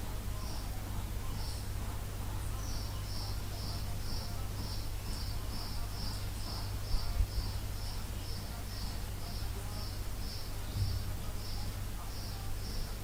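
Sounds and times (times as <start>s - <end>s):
low thumps: 10.6s - 11.2s.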